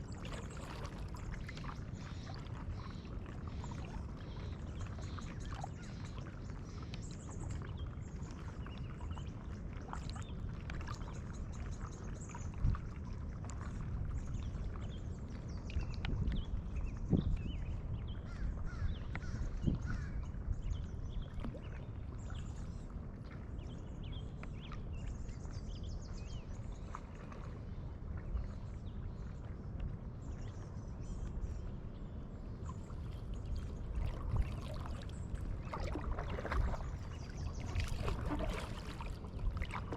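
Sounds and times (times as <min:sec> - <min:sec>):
paddle splashing water: 0:00.0 - 0:14.9, 0:24.3 - 0:39.9
steady low rumble: 0:25.0 - 0:39.9.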